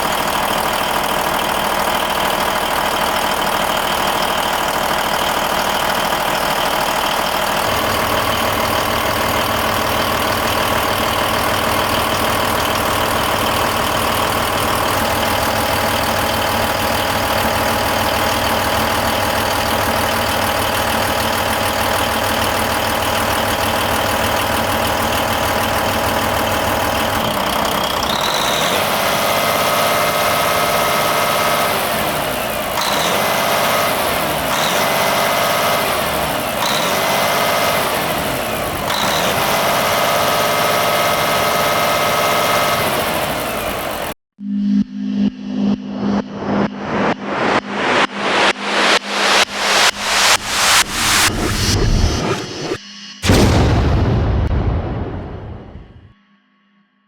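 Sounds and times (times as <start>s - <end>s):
diesel truck engine idling: 0.0s - 44.2s
rising tones: 46.1s - 56.1s.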